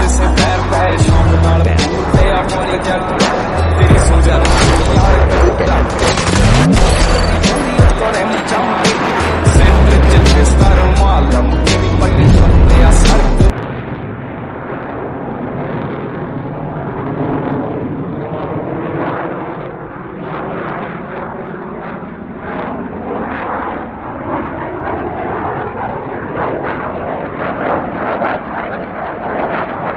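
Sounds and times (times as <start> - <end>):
fighter jet engines in flight: 0.0 - 29.9.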